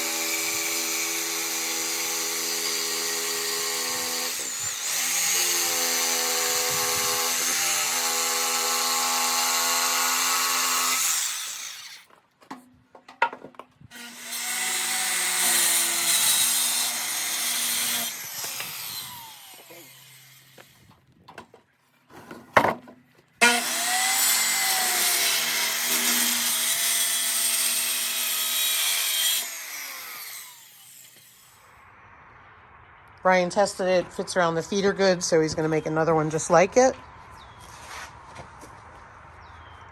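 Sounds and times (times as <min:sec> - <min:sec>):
power tool cutting wood: 0:00.0 - 0:12.1, 0:13.9 - 0:21.0, 0:23.4 - 0:31.7.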